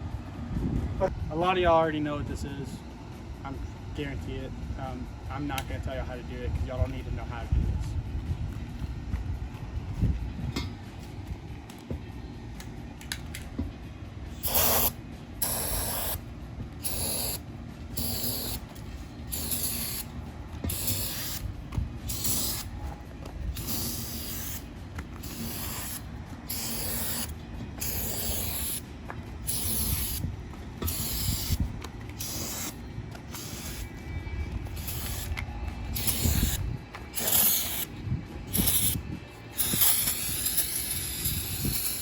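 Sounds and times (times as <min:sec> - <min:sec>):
aerosol spray hissing bursts: 0:14.4 - 0:16.2, 0:16.8 - 0:17.4, 0:18.0 - 0:18.6, 0:19.3 - 0:20.1, 0:20.7 - 0:21.4, 0:22.1 - 0:22.7, 0:23.6 - 0:24.6, 0:25.2 - 0:28.8, 0:29.4 - 0:31.6, 0:32.2 - 0:33.9, 0:34.8 - 0:37.9, 0:38.5 - 0:39.0, 0:39.6 - 0:42.0.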